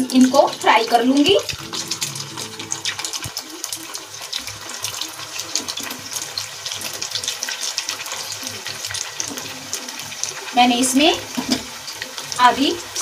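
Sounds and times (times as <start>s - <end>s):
food deep-frying in oil: 0.0s - 13.0s.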